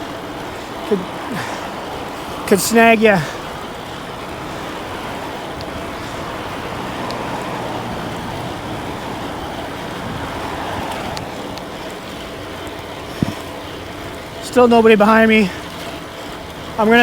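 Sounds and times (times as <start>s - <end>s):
road noise: 0.0s - 17.0s
rushing wind: 0.0s - 17.0s.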